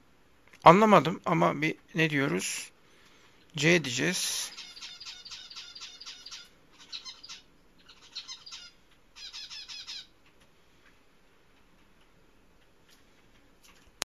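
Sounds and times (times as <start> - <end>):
small bird chirping: 4.3 - 10.3.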